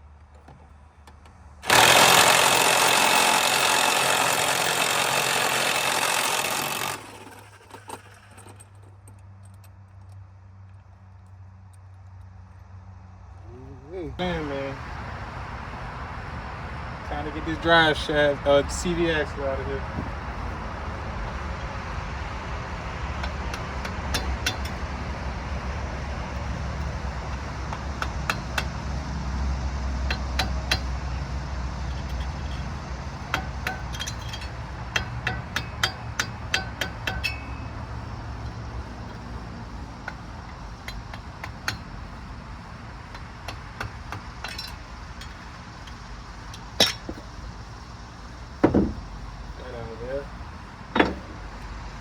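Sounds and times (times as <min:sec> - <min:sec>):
metal tools clinking: 0:31.8 - 0:37.8, 0:43.1 - 0:47.4.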